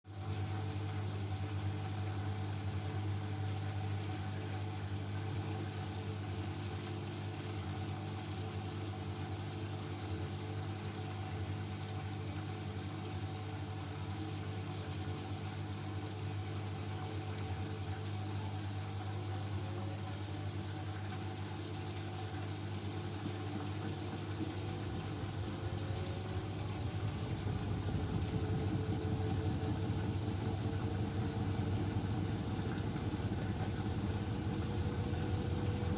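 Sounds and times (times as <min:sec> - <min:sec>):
washing machine motor hum: 0:00.0 - 0:35.9
spinning drum whine: 0:20.3 - 0:35.9
drum rumble and rattle: 0:24.8 - 0:35.9.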